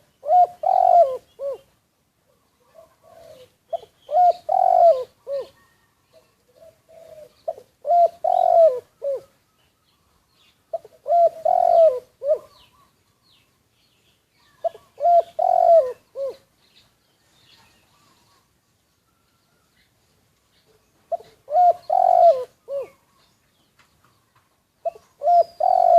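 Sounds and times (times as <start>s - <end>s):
dove cooing: 0.0s - 1.7s, 2.3s - 9.4s, 10.7s - 13.0s, 14.6s - 16.5s, 21.1s - 23.3s, 24.8s - 25.9s
small birds chirping: 0.0s - 25.9s.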